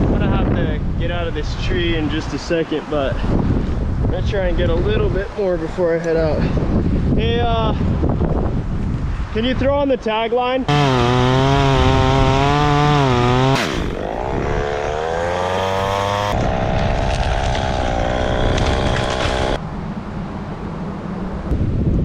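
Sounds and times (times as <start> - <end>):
wind noise on microphone: 0.0 - 2.4, 3.0 - 9.9, 10.7 - 19.6, 21.4 - 22.0
chainsaw cutting wood: 10.7 - 19.6.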